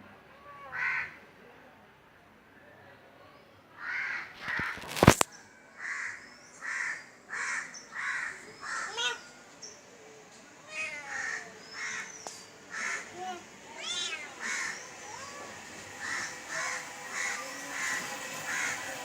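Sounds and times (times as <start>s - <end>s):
bird cawing: 5.8s - 9.2s, 10.8s - 19.0s
short higher bird calls: 13.8s - 19.0s.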